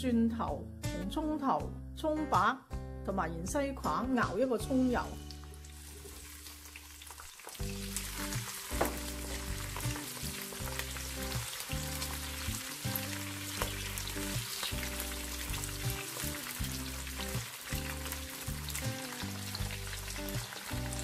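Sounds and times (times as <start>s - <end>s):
background music: 0.0s - 21.0s
vegetables sizzling in hot oil: 5.0s - 21.0s.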